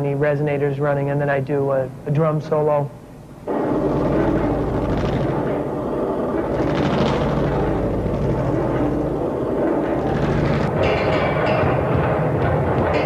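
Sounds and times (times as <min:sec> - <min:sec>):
steel ring rumbling on table: 0:03.5 - 0:11.6.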